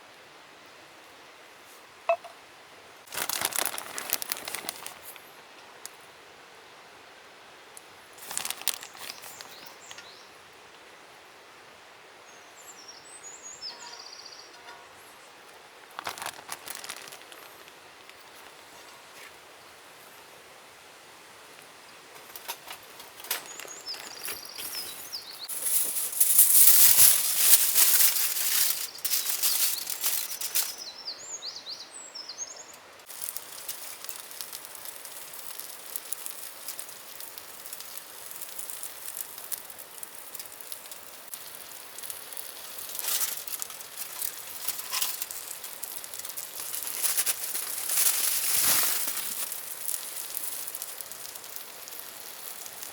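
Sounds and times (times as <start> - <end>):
food rustling and clicking: 3.1 - 5.2, 8.2 - 10.1, 15.9 - 18.7, 22.3 - 30.8, 33.0 - 52.9
birds chirping: 23.4 - 25.6.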